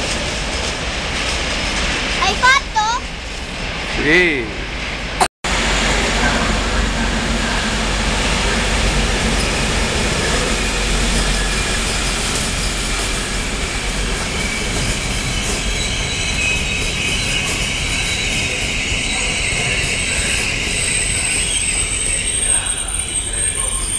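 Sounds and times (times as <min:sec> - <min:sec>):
train wheels rumbling on rails: 0:00.0 - 0:23.9
metallic wheel squeal: 0:14.2 - 0:23.9.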